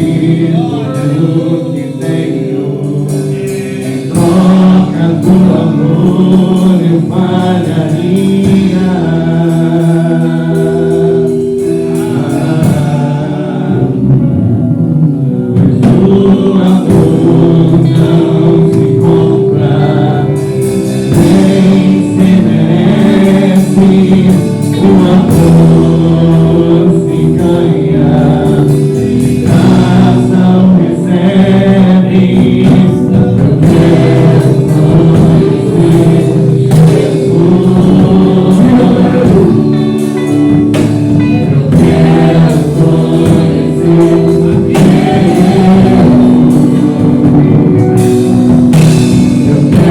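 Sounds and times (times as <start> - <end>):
choir singing held notes: 0.0 - 49.9
instrumental accompaniment: 0.0 - 49.9.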